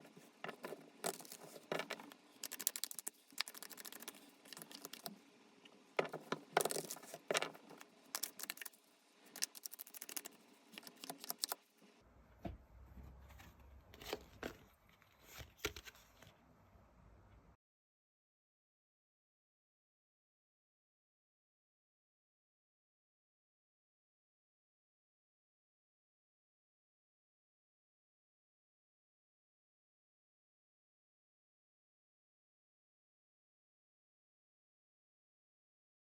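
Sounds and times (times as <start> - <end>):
cards being shuffled: 0.5 - 5.1, 6.0 - 11.6.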